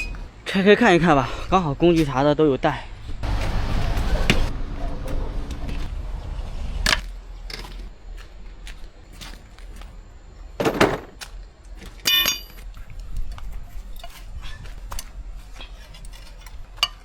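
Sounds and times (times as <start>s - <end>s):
metal hand tools clinking: 12.0s - 12.6s
ringing metallic clink: 12.0s - 12.6s.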